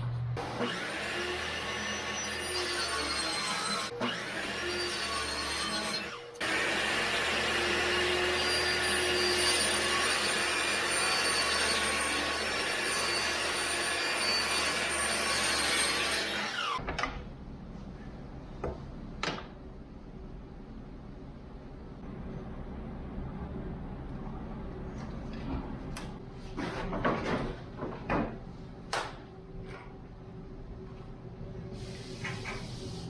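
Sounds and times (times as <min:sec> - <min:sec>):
power tool whining on wood: 0:00.4 - 0:16.8.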